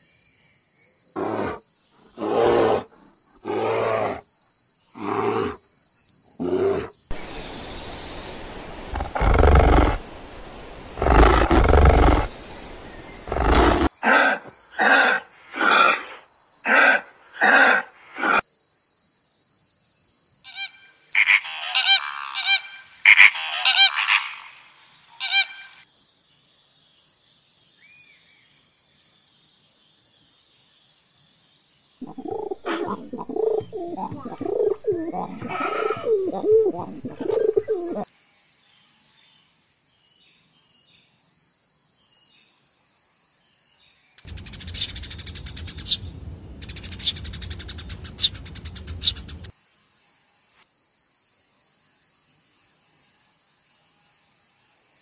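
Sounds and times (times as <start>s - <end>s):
animal growls: 1.2s - 1.6s, 2.2s - 4.2s, 5.0s - 5.6s, 6.4s - 16.1s, 32.0s - 38.0s
deep animal roars: 6.4s - 13.9s, 32.0s - 38.0s
short higher-pitched animal calls: 32.0s - 38.0s.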